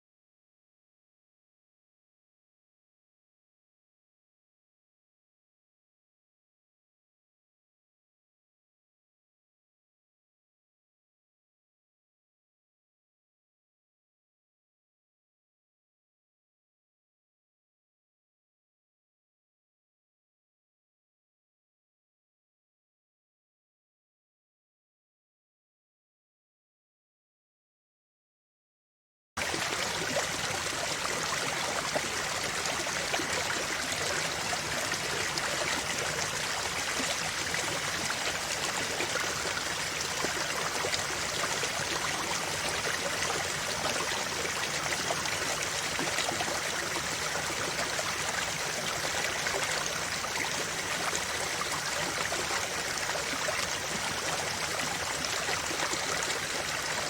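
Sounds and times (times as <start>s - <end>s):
stream rushing and trickling: 29.4s - 57.0s.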